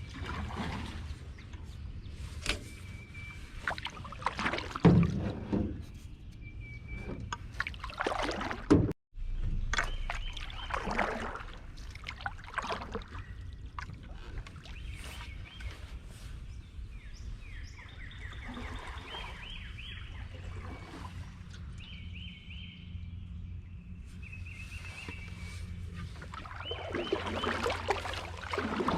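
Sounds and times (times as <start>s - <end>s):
paddle strokes splashing water: 0.0s - 1.5s, 3.3s - 5.7s, 6.9s - 8.9s, 9.7s - 16.0s, 18.2s - 21.8s, 25.0s - 28.9s
flowing water rumble: 0.0s - 2.2s, 3.1s - 23.5s, 24.8s - 28.9s.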